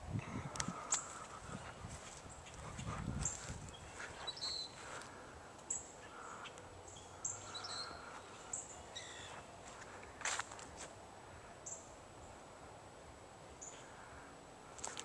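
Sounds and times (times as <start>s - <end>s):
low background hiss: 0.0s - 15.0s
birds chirping: 0.6s - 10.4s, 13.5s - 15.0s.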